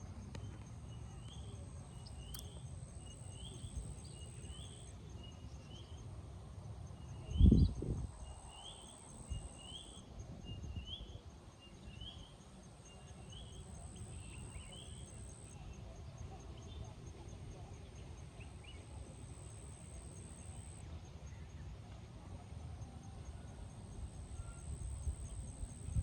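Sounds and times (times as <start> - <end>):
wind rumble on microphone: 7.3 - 8.6, 24.3 - 26.0
high-pitched insect drone: 12.6 - 15.6, 19.2 - 20.8.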